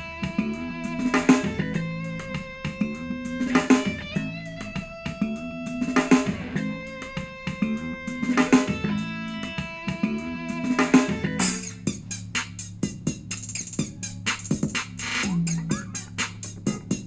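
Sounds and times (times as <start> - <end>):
guitar music from a speaker: 0.0 - 11.7.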